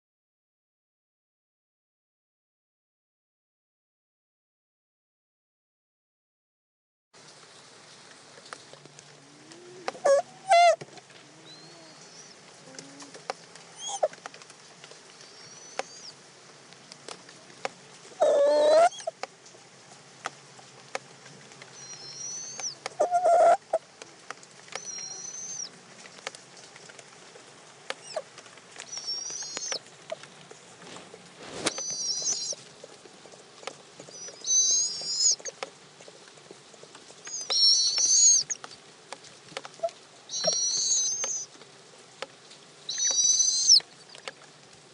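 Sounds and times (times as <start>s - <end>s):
harsh low owl calls: 9.1s - 14.2s, 15.2s - 16.2s, 18.2s - 19.2s, 21.8s - 23.9s, 24.8s - 25.7s, 28.0s - 28.3s, 28.9s - 30.3s, 31.6s - 32.6s, 34.0s - 35.6s, 37.2s - 38.7s, 39.7s - 41.5s, 42.9s - 44.3s
owls calling high and wavering: 9.4s - 14.2s, 15.2s - 16.2s, 18.2s - 19.2s, 21.8s - 23.8s, 24.8s - 25.7s, 28.0s - 28.3s, 28.9s - 30.2s, 31.6s - 32.6s, 34.1s - 35.6s, 37.2s - 38.7s, 39.7s - 41.5s, 42.9s - 44.3s.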